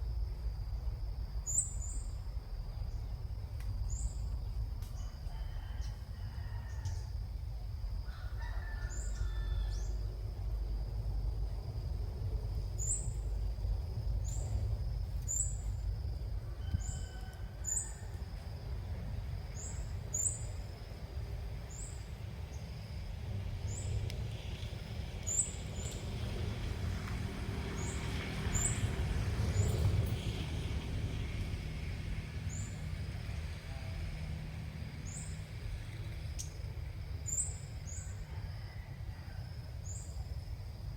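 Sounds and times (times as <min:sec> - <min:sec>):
steady low rumble: 0:00.0 - 0:05.3, 0:09.7 - 0:17.0.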